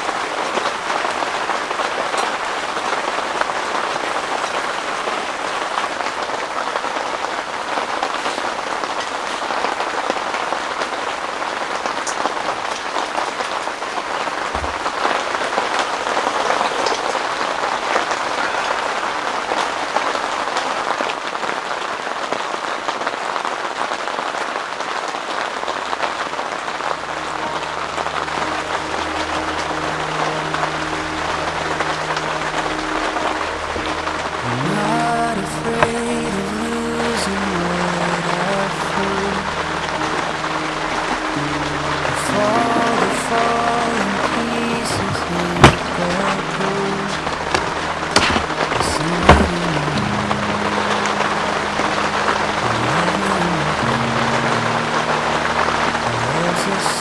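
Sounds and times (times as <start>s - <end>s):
heavy rain pouring: 0.0s - 57.0s
low sustained music tones: 26.4s - 57.0s.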